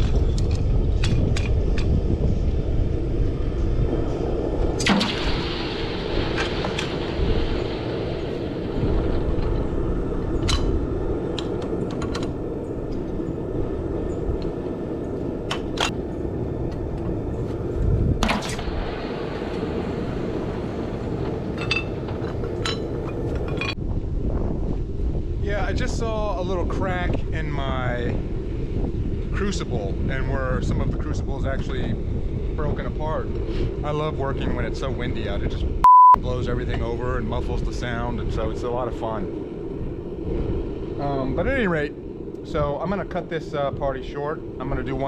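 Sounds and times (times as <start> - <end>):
low rumble: 0.0 - 45.0
wind buffeting microphone: 0.0 - 45.0.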